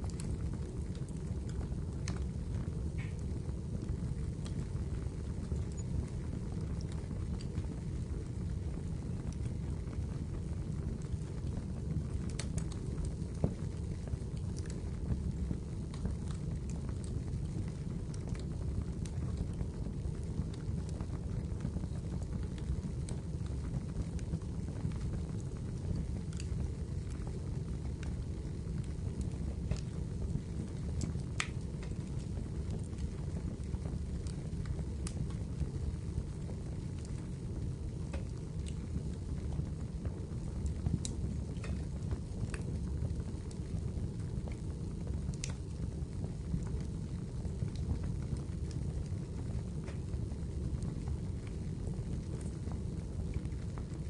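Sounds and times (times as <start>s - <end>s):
low rumble of flames: 0.0s - 54.0s
wood fire crackling: 0.0s - 54.0s
sharp pops and snaps: 31.0s - 33.1s, 40.8s - 42.7s, 45.3s - 45.7s.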